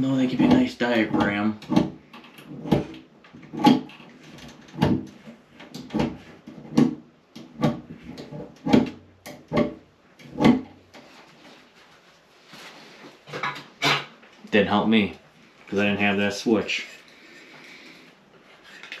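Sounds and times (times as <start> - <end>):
short creaking knocks: 0.4 - 5.2.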